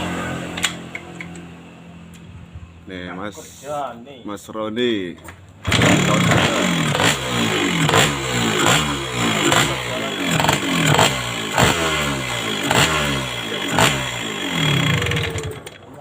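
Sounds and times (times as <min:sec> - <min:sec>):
motorcycle engine revving: 0:00.0 - 0:01.9, 0:05.6 - 0:15.9.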